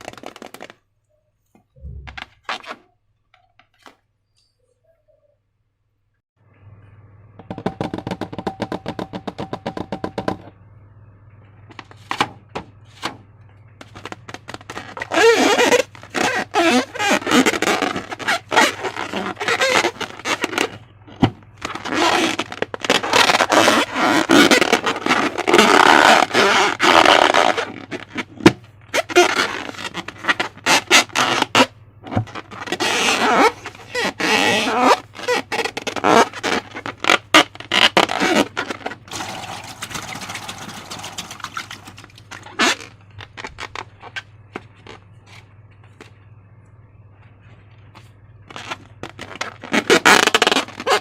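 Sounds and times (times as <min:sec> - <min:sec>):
steady low hum: 0:04.4 - 0:14.6.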